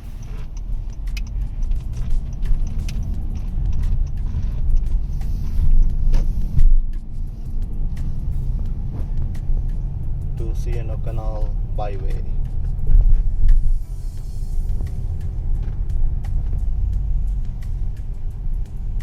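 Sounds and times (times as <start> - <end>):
car rumbling on road: 0.0 - 19.0.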